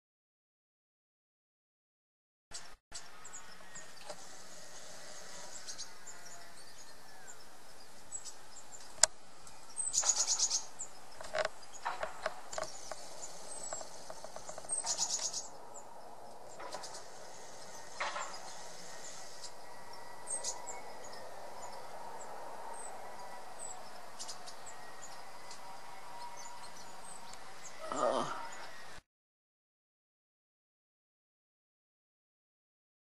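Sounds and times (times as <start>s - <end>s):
small birds chirping: 2.5s - 29.0s
steady background noise: 2.6s - 29.0s
loud rapid bird trills: 3.0s - 9.0s, 9.6s - 29.0s.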